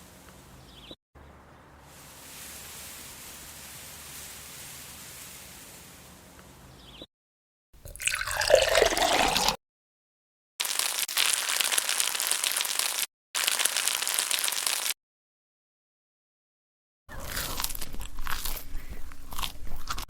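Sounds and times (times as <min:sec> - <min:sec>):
liquid pouring into a pan: 0:07.8 - 0:09.6
oil frying sizzle: 0:10.6 - 0:15.0.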